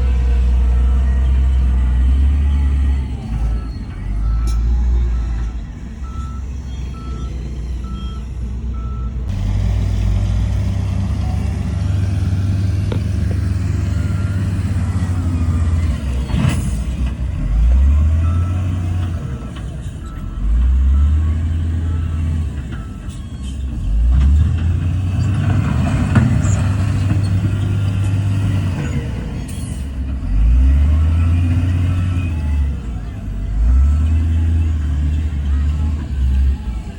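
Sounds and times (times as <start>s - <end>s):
reversing alarm beeping: 0.0s - 9.3s, 11.2s - 24.0s
heavy diesel machinery revving: 0.0s - 36.9s.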